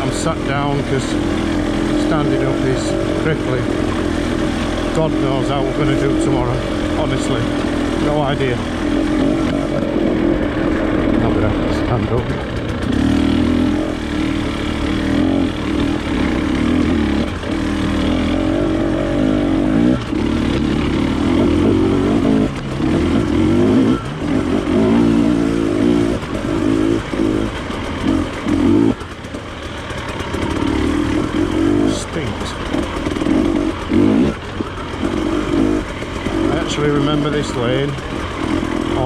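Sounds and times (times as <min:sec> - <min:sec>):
motorcycle engine under load: 0:00.0 - 0:39.0.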